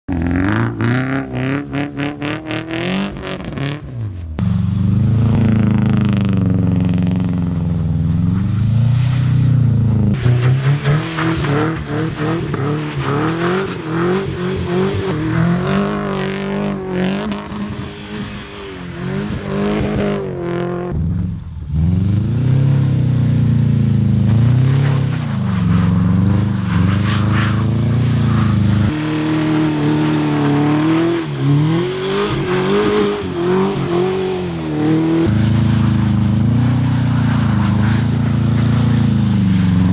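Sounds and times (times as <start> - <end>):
car engine revving hard: 21.7 - 39.9.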